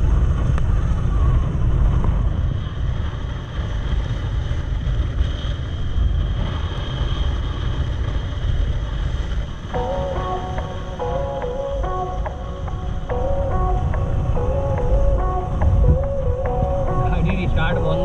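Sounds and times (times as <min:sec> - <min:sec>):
motorcycle engine: 0:00.0 - 0:18.0
wind buffeting microphone: 0:00.0 - 0:18.0
background music: 0:09.4 - 0:18.0.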